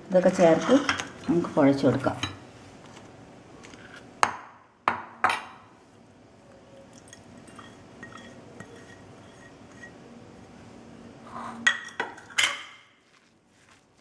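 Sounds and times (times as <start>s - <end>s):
utensils clinking against bowl: 7.0s - 10.0s, 11.7s - 12.9s
faint handling sounds: 13.0s - 14.0s.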